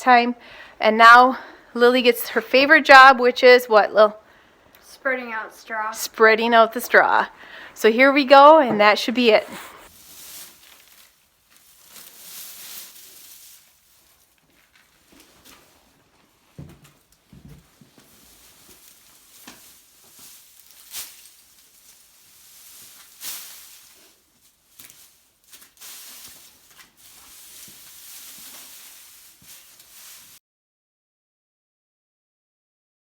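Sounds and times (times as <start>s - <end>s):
straw rustling: 5.1s - 30.4s
sharp crackles: 7.9s - 30.4s
soft thuds: 16.6s - 18.1s.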